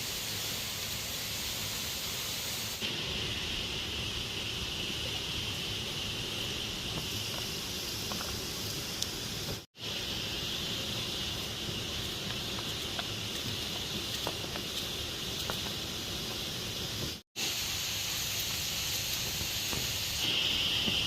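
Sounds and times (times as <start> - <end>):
constant high hiss: 0.0 - 21.0.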